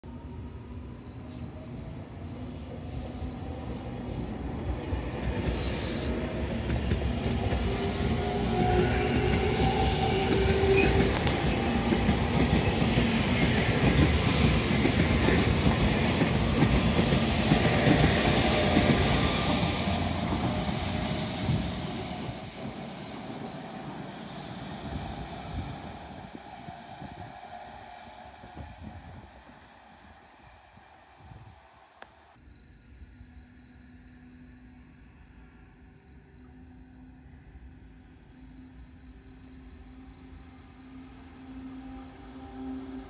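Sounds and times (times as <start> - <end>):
thin high train whine: 0.1 - 43.0
train wheels rumbling on rails: 2.2 - 32.2.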